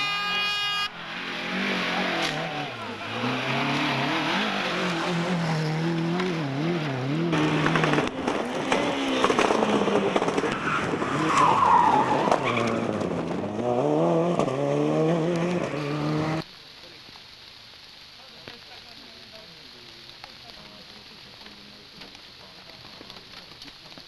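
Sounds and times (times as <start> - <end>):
rally car engine revving: 0.0 - 16.4.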